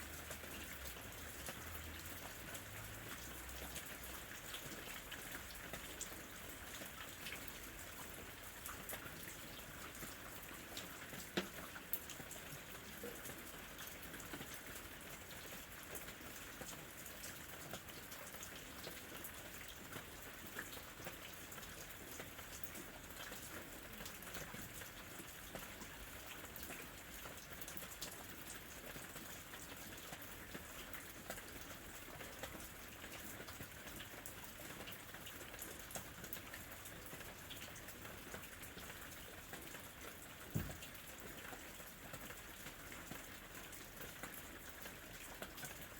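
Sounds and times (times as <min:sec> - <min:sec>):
rain pattering on tree: 0:00.0 - 0:45.9.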